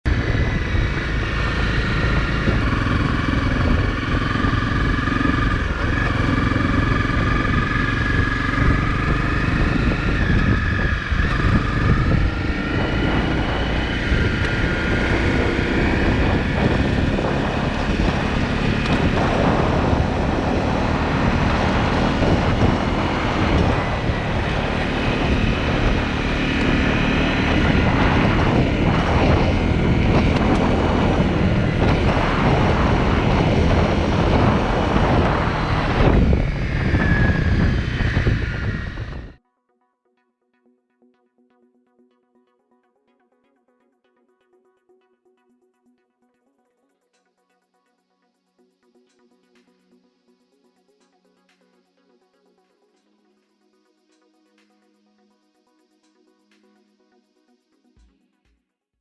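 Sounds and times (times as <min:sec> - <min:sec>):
motorcycle engine running: 0:00.0 - 0:39.4
wind rush on microphone: 0:00.1 - 0:39.4.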